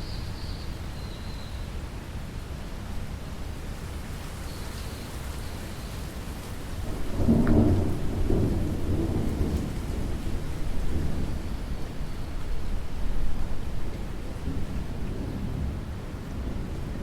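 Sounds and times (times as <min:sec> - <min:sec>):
steady rainfall: 0:00.0 - 0:17.0
thunder rumbling: 0:06.6 - 0:17.0.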